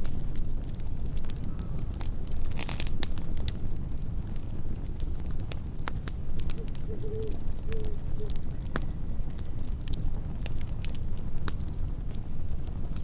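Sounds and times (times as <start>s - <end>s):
campfire crackling and popping: 0.0s - 13.0s
cricket chirps: 0.0s - 13.0s
low wavering animal call: 6.6s - 8.4s.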